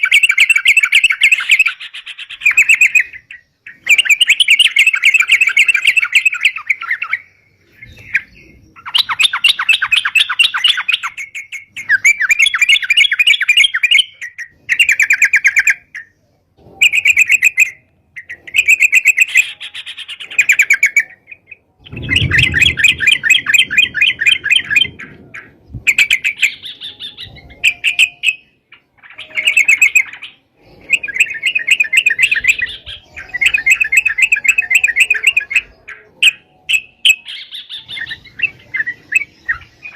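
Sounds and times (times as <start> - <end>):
bird singing bubbling chatter: 0.0 - 39.9.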